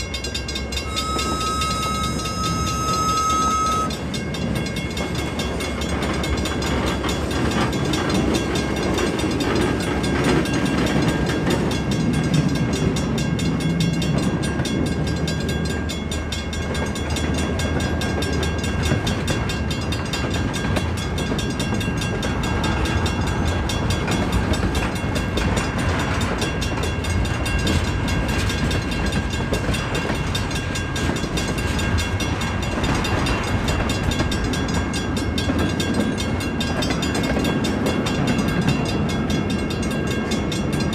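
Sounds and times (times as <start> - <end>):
diesel locomotive engine running: 0.0 - 40.9
rail cars rolling over track: 0.0 - 40.9.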